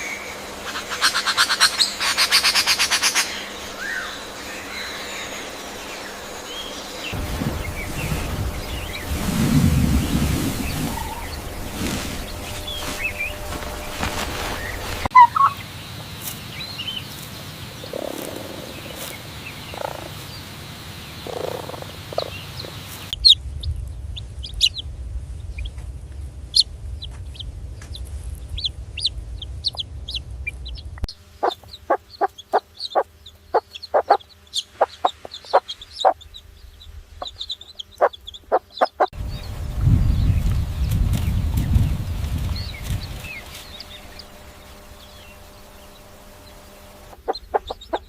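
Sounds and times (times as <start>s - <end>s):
chickens clucking: 10.6s - 15.8s, 17.8s - 23.3s, 28.6s - 36.6s, 37.2s - 39.2s, 45.9s - 48.0s.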